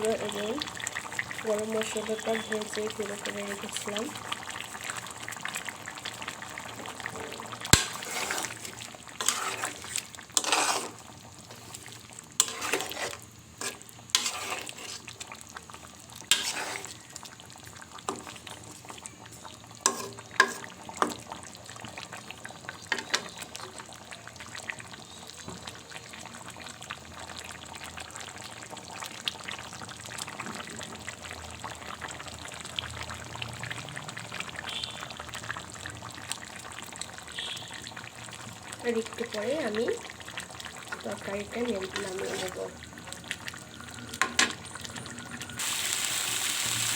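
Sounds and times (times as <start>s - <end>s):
curry simmering with low sizzle: 0.0s - 46.9s
spatula scraping curry in a pot: 7.8s - 15.4s, 16.3s - 17.0s, 19.9s - 20.8s, 41.8s - 42.7s.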